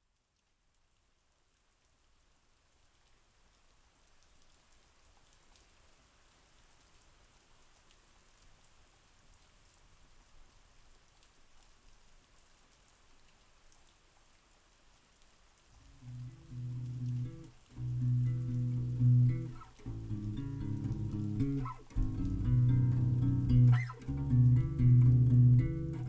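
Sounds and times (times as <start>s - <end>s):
faint steady rain: 0.0s - 26.0s
drops ticking on a surface: 15.9s - 26.0s.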